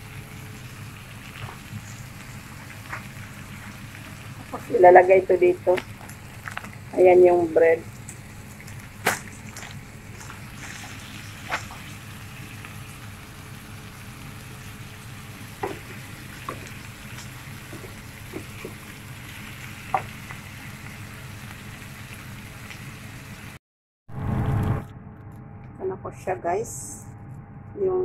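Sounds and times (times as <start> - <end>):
flatbread sizzling in oiled pan: 0.0 - 4.8, 7.8 - 23.6.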